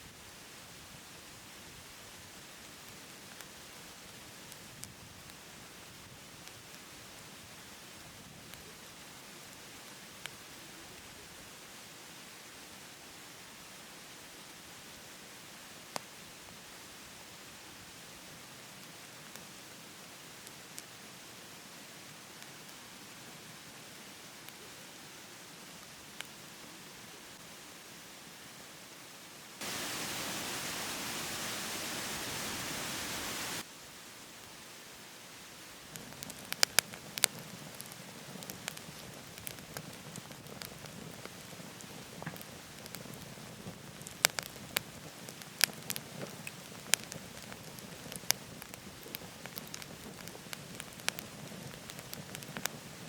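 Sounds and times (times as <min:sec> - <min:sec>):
firewood crackling and popping: 0:01.8 - 0:11.1, 0:18.6 - 0:21.0, 0:35.8 - 0:53.0
waterfall rushing: 0:29.6 - 0:33.6.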